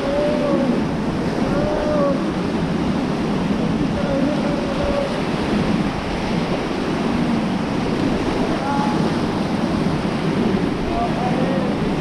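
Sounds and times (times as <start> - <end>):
distant voices calling out: 0.0 - 6.0, 7.8 - 9.6, 10.2 - 12.0
river rapids roaring: 0.0 - 12.0
wind buffeting microphone: 0.0 - 12.0.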